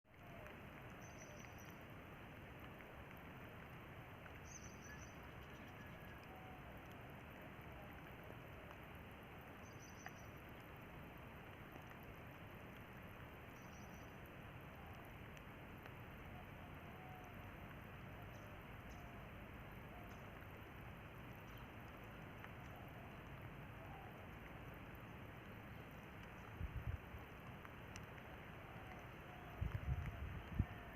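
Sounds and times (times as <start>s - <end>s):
rain falling: 0.1s - 30.9s.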